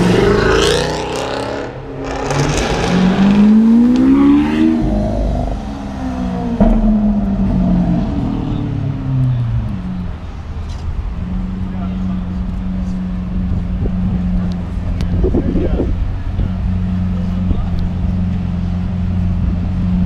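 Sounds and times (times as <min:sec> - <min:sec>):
car engine revving hard: 0:00.0 - 0:09.1
sharp crack: 0:06.6 - 0:09.8.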